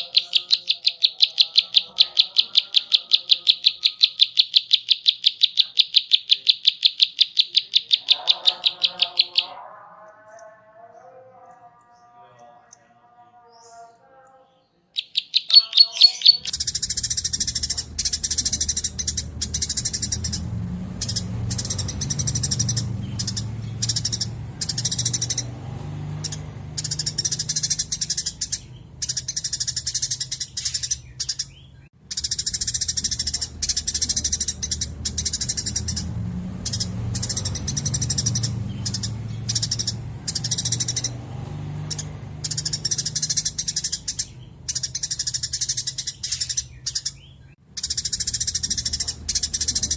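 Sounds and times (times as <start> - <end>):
songbird singing: 0.0 - 49.9
steady low hum: 16.3 - 49.9.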